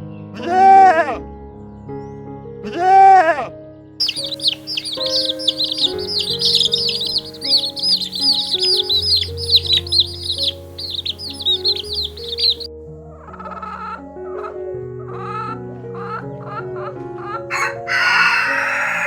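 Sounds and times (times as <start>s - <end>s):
background music: 4.0s - 19.0s
birds chirping: 4.0s - 19.0s.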